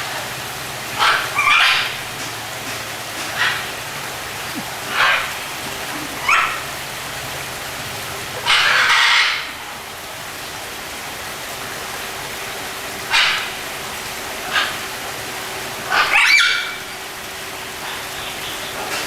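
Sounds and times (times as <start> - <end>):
harsh bird squawks: 1.0 - 2.1, 3.2 - 6.8, 8.1 - 9.7.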